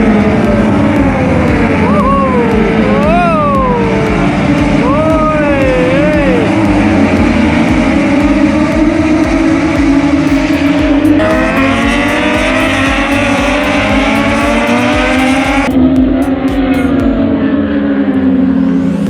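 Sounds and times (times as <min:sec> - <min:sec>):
race motorcycle engines screaming: 0:00.0 - 0:15.7.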